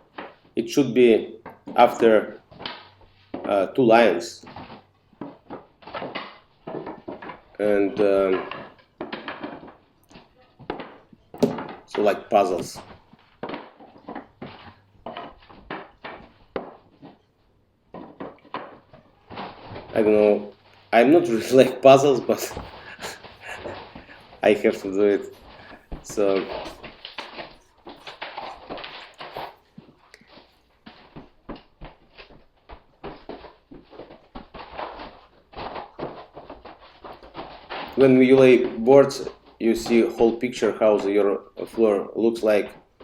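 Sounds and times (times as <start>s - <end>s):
wooden boards knocking: 4.4s - 17.2s
wooden floorboards knocking: 4.4s - 17.2s, 17.9s - 20.2s, 22.2s - 40.1s.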